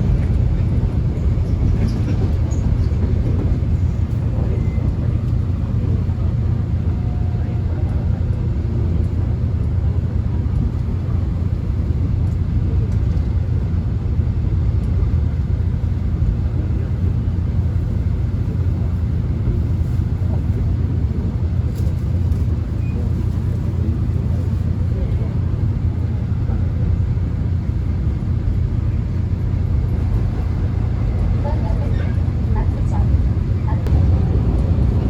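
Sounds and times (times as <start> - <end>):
subway train rumble: 0.0 - 35.0.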